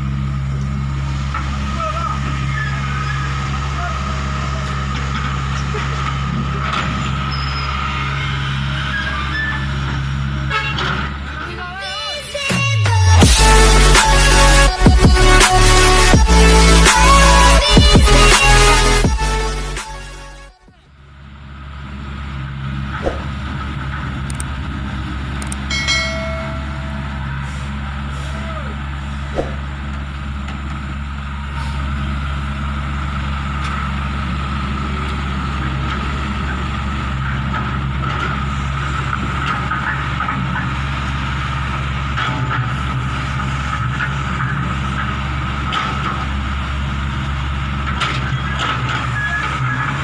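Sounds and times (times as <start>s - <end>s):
excavator diesel engine running: 0.0s - 50.0s
high whine: 12.8s - 20.6s, 25.4s - 30.2s
short high tone: 25.7s - 27.5s.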